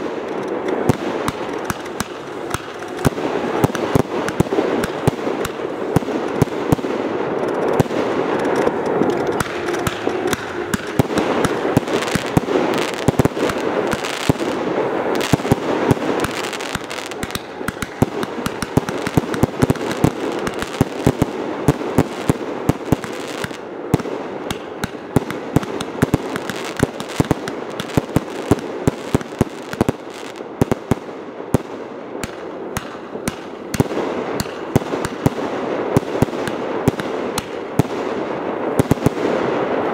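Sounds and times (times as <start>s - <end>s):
steady noise: 0.0s - 33.7s
fireworks bangs and crackling: 0.0s - 39.9s.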